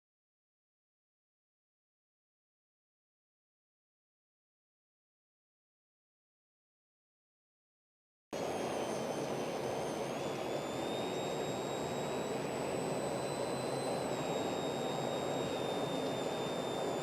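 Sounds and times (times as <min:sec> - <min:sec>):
faint high whine: 0:08.4 - 0:17.0.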